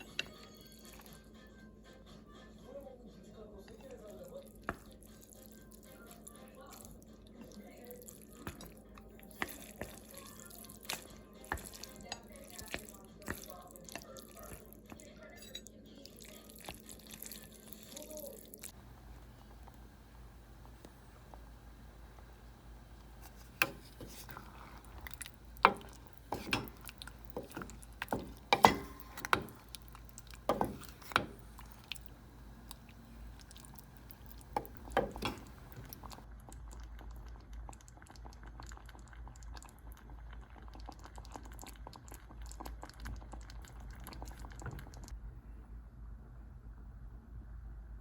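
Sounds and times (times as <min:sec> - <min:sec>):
faint low hum: 0:18.7 - 0:37.5
cutlery clinking on dish: 0:25.7 - 0:29.7, 0:34.6 - 0:36.2.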